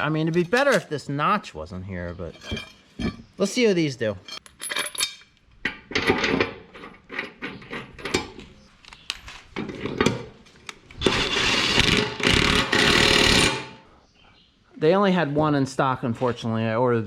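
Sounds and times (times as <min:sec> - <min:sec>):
metal parts clinking and knocking: 0:02.3 - 0:03.2, 0:04.2 - 0:10.1
power tool running: 0:11.0 - 0:13.7.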